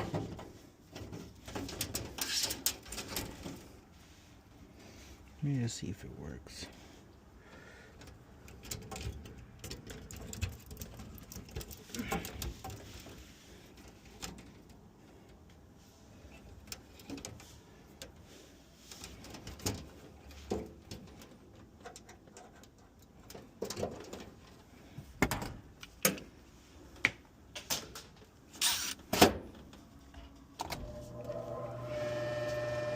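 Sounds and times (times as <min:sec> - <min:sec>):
blower motor humming: 0:30.8 - 0:32.9.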